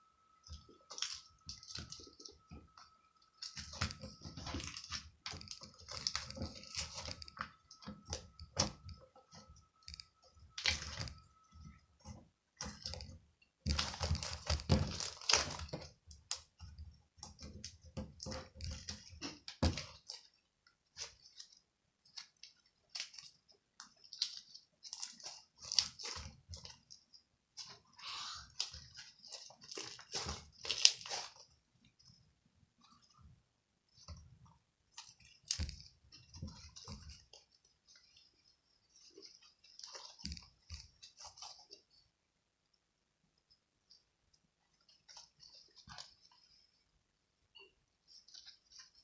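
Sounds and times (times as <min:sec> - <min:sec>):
faint steady tone: 0:00.0 - 0:13.8
crisp crunching and clicking: 0:00.5 - 0:32.2, 0:34.9 - 0:42.0.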